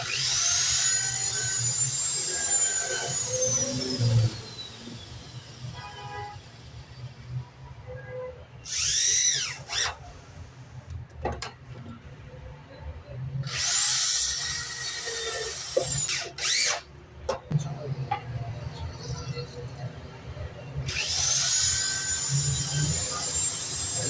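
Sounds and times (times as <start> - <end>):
power drill spinning: 0.0 - 5.8, 8.6 - 10.0, 13.4 - 16.8, 20.8 - 24.0.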